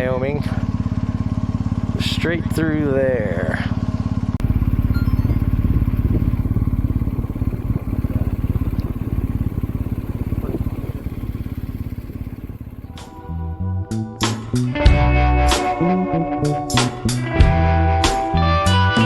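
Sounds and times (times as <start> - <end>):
motorcycle engine running: 0.0 - 15.2
guitar music: 4.8 - 6.7, 12.9 - 19.0.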